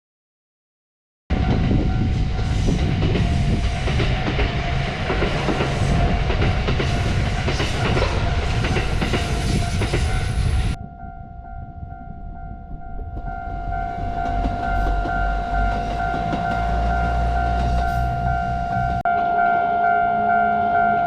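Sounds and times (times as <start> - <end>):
level crossing warning bell: 1.4 - 21.0
train wheels clattering: 1.5 - 10.8, 13.0 - 19.0.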